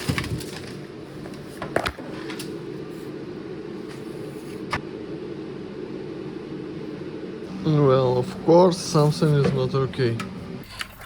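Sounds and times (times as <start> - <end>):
low workshop hum: 0.0 - 11.0.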